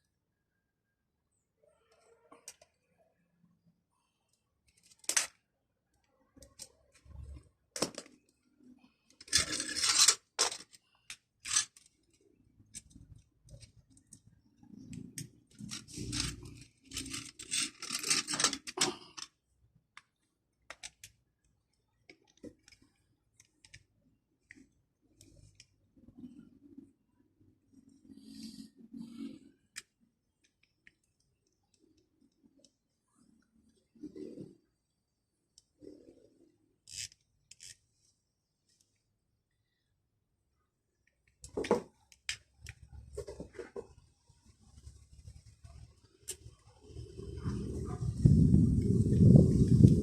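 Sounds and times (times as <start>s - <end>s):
metal parts scraping and rattling: 9.2s - 10.8s, 11.4s - 12.0s, 14.8s - 19.3s.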